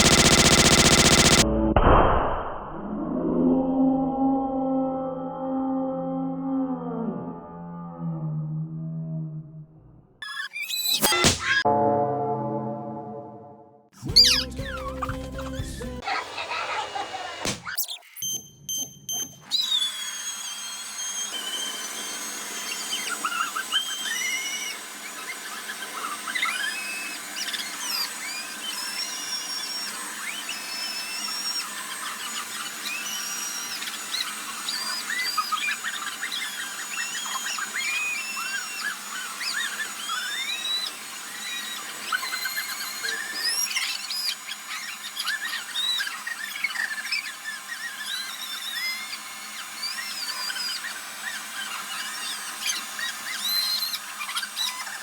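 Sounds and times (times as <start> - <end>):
balloon squeaking and rubbing: 14.0 - 15.1.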